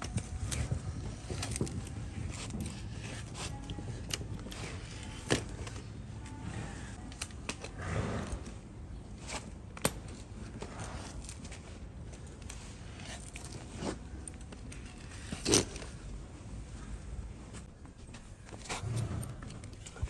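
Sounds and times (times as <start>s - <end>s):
knocks and clicks on hooves: 0.0s - 6.4s.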